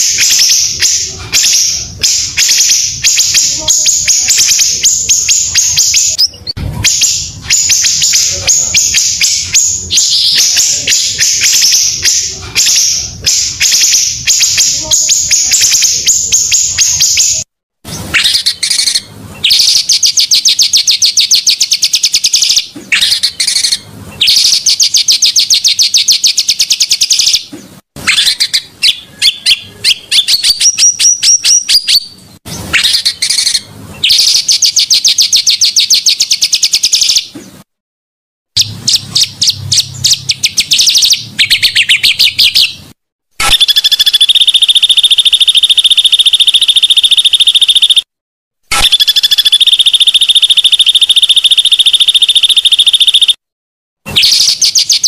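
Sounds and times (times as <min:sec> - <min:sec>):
bird singing rattling trills: 0:00.0 - 0:17.4, 0:18.2 - 0:27.5, 0:38.6 - 0:42.8, 0:43.5 - 0:48.0, 0:48.8 - 0:53.3, 0:54.1 - 0:55.0
buzzing bird trill: 0:43.4 - 0:48.1, 0:48.7 - 0:53.4.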